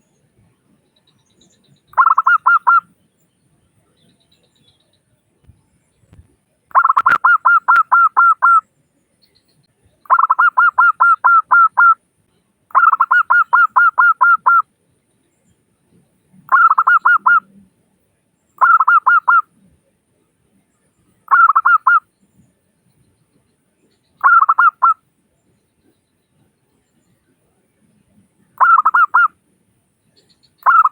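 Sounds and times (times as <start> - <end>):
dove cooing: 2.0 - 2.8, 6.7 - 8.6, 10.1 - 12.0, 12.7 - 14.6, 16.5 - 17.5, 18.6 - 19.4, 21.3 - 22.0, 24.2 - 25.0, 28.6 - 29.3, 30.6 - 30.9.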